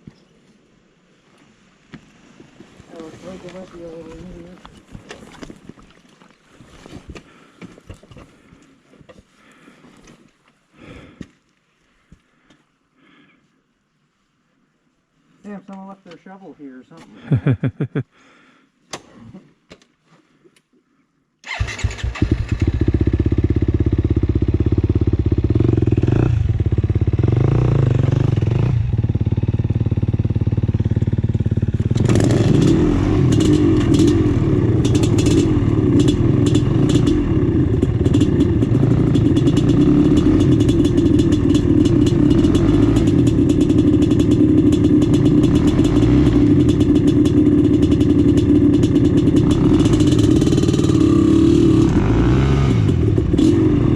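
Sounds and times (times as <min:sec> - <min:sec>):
rapid sharp engine crackles: 0:21.4 - 0:23.3, 0:30.1 - 0:53.9
dirt bike engine running: 0:21.5 - 0:53.9.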